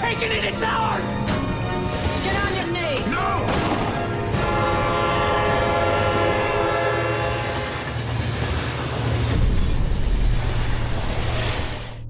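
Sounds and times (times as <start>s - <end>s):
passing train rumble: 3.8s - 12.0s
train horn: 4.3s - 8.1s.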